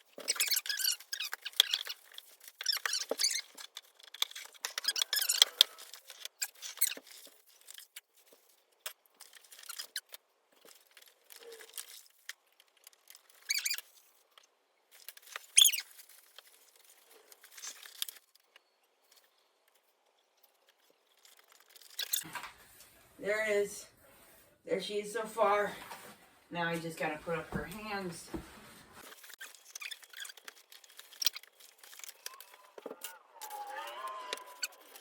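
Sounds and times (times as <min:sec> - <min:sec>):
rustling of parts and costume: 0:00.0 - 0:24.6, 0:25.2 - 0:35.0
squeaks: 0:00.1 - 0:07.4, 0:13.1 - 0:14.0, 0:15.4 - 0:16.1, 0:29.1 - 0:33.2.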